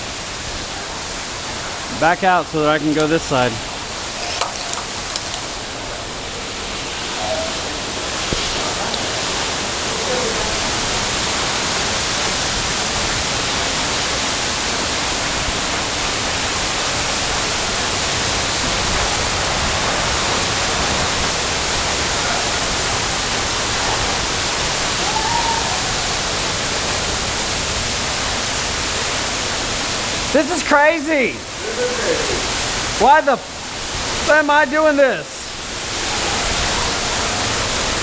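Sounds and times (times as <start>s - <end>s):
waterfall rushing: 0.0s - 38.0s
faint voices: 5.8s - 11.0s.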